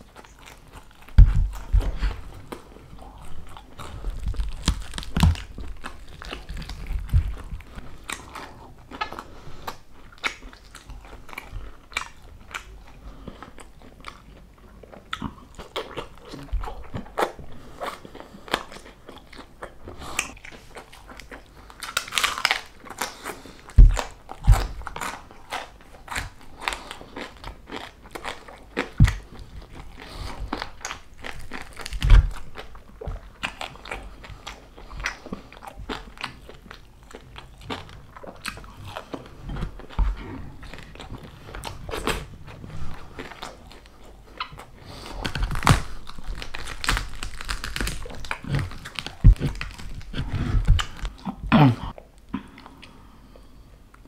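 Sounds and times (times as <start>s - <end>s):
chewing and crunching: 0.0s - 54.0s
crackling skin torn apart: 3.4s - 9.2s, 21.1s - 35.2s, 37.4s - 51.2s
loud dull thumps: 23.8s - 24.7s.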